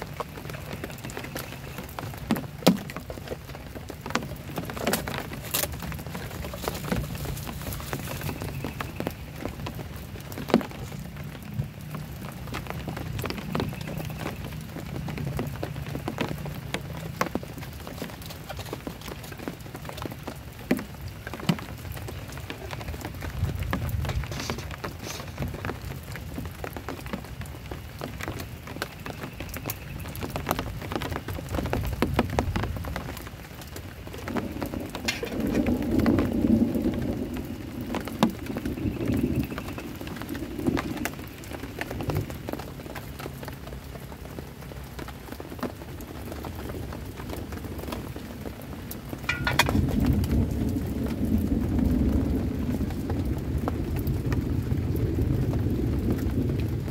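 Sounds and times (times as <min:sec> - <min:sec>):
heavy rain on a shelter: 0:00.0 - 0:56.9
low thunder rumbles: 0:30.4 - 0:43.0, 0:45.8 - 0:56.9.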